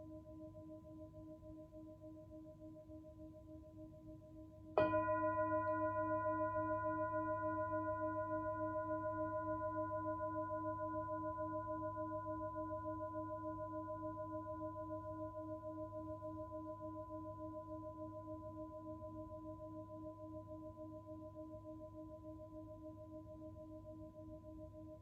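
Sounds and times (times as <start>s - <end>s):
singing bowl ringing: 4.8s - 11.3s.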